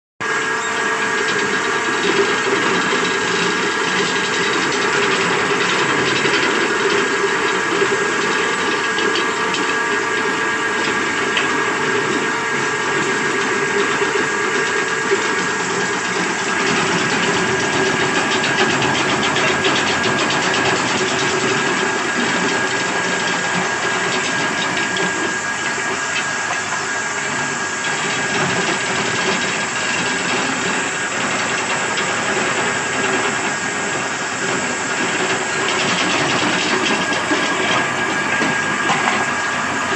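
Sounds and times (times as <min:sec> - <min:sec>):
belt sander running: 0:00.2 - 0:39.9.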